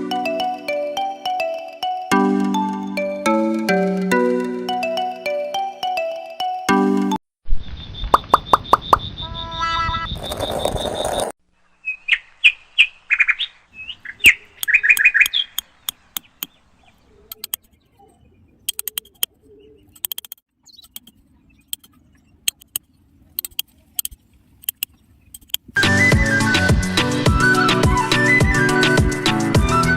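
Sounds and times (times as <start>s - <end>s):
bird chirping: 7.6s - 25.7s
sharp clicks and taps: 14.6s - 16.5s, 17.3s - 17.7s, 18.7s - 19.3s, 20.0s - 21.1s, 21.7s - 21.9s, 22.5s - 22.8s, 23.4s - 25.7s.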